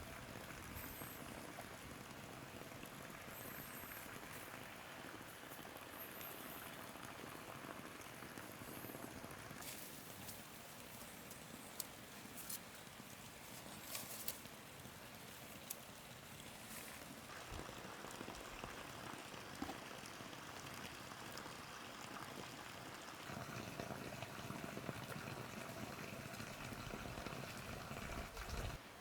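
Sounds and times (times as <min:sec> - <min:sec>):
water bubbling: 0:23.2 - 0:28.8.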